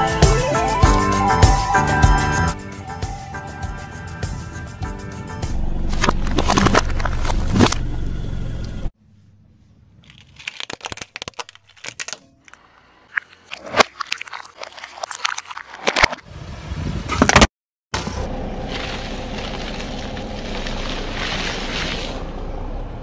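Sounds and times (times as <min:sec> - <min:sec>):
car running: 0:03.2 - 0:08.9, 0:18.0 - 0:23.0
tyre crushing brittle objects: 0:05.9 - 0:07.8, 0:10.0 - 0:16.2.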